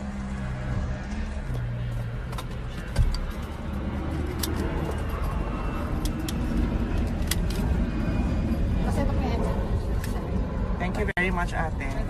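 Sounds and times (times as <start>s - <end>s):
scattered clicks: 4.2s - 7.8s.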